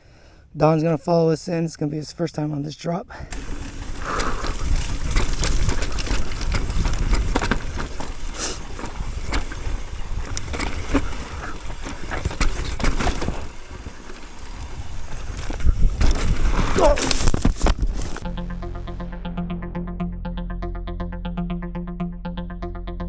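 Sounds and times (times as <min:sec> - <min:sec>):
bike rattling on rough trail: 0:03.3 - 0:18.2
wind rumbling on microphone: 0:03.4 - 0:18.3.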